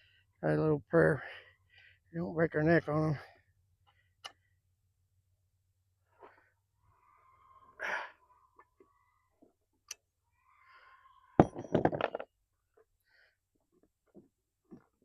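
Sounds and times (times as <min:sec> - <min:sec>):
breathy exhale: 0:06.2 - 0:09.3.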